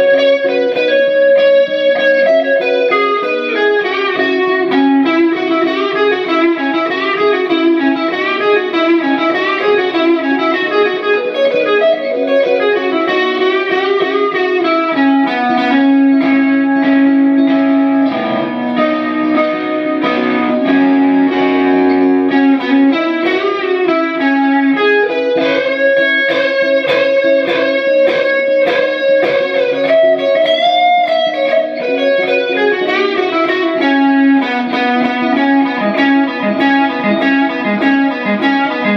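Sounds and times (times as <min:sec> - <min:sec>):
electric guitar melody: 0:00.0 - 0:38.9
picked guitar chords: 0:00.0 - 0:38.9.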